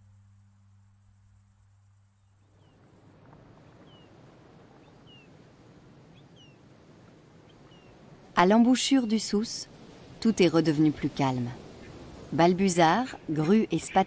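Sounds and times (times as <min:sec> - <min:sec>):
insect-like trill: 0:00.0 - 0:03.3
outdoor hiss: 0:00.0 - 0:14.0
wild birds chirping: 0:02.0 - 0:14.0.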